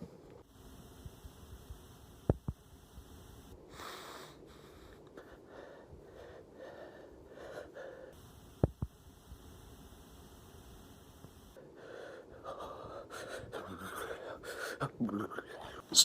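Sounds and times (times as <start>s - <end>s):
person breathing heavily: 3.7s - 8.2s, 11.6s - 15.9s.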